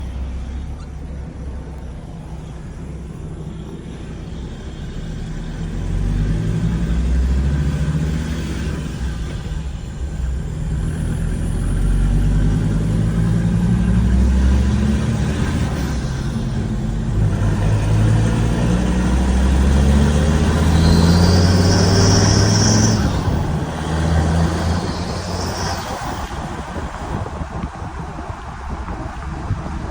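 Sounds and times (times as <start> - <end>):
diesel engine accelerating: 0.0 - 29.9
high-pitched whistle: 20.5 - 26.3.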